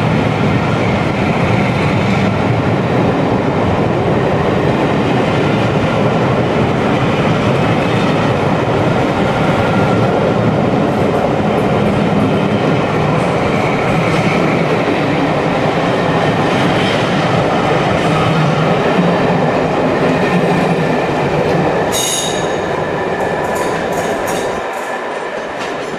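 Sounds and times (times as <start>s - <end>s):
train wheels rumbling on rail: 0.0s - 25.9s
high wheel squeal: 21.9s - 22.6s.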